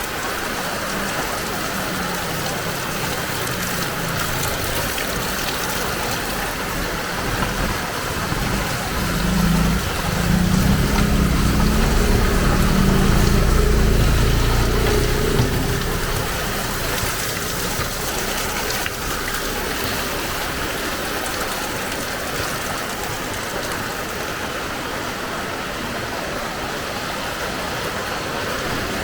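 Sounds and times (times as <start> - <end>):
heavy rain hissing: 0.0 - 26.4
low vehicle rumble: 0.8 - 23.3.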